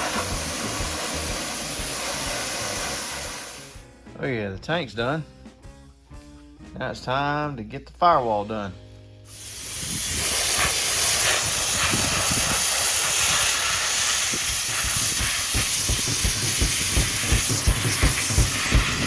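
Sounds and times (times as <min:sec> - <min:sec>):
sandblaster hissing against sheet metal: 0:00.0 - 0:03.8, 0:09.3 - 0:19.0.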